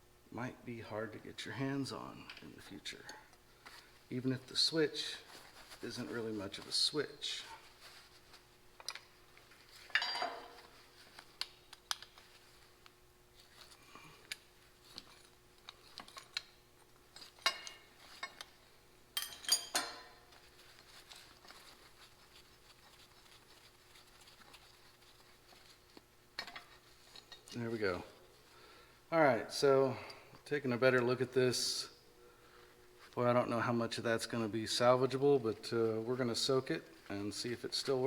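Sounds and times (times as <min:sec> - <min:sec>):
metal parts and tools clinking: 0:09.8 - 0:10.7, 0:19.2 - 0:20.4.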